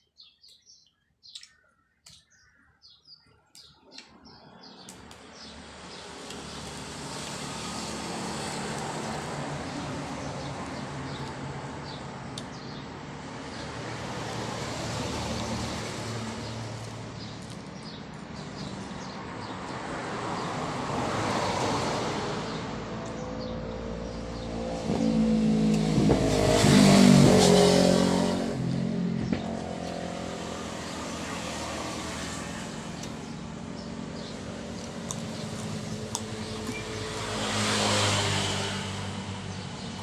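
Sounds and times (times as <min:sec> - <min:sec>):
motor vehicles passing by: 0:03.9 - 0:40.0.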